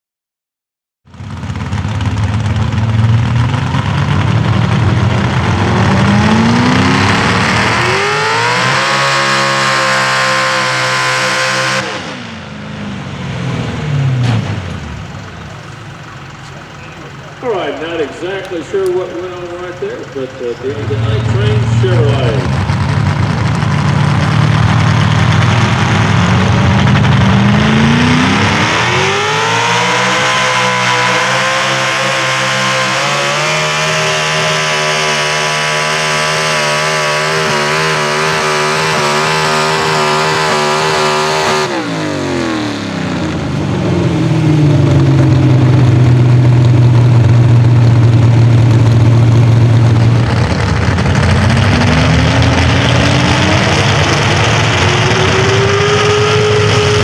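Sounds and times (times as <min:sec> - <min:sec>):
truck engine revving: 0:01.1 - 0:57.0.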